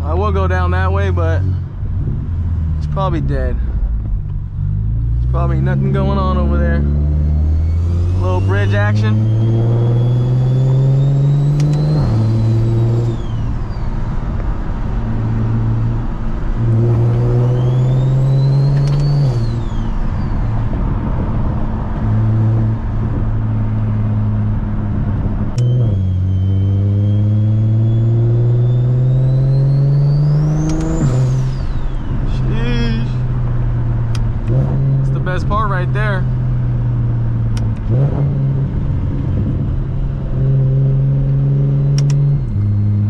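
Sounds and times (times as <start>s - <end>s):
car engine revving through gears: 0.2s - 43.0s
sharp click: 11.5s - 12.0s, 18.6s - 19.3s, 30.6s - 31.3s, 41.9s - 42.7s.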